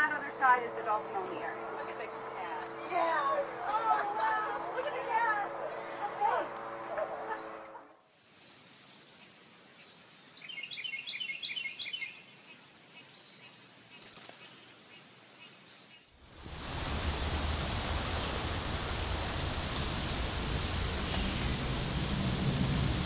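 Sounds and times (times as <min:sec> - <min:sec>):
birds chirping: 0:00.0 - 0:16.2
faint outdoor hiss: 0:00.0 - 0:23.0
loud steady hiss: 0:08.0 - 0:23.0.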